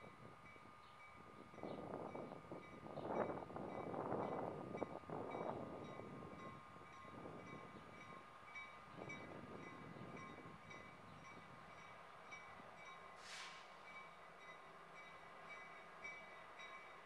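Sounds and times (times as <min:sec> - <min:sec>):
distant freight train rumble: 0:00.0 - 0:17.0
crossing bell ringing: 0:13.9 - 0:17.0.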